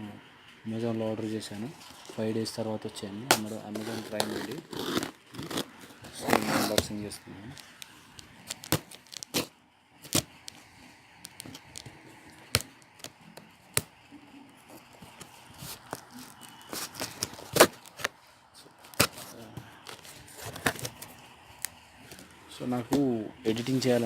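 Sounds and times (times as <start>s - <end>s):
quiet rustling: 5.5s - 24.0s.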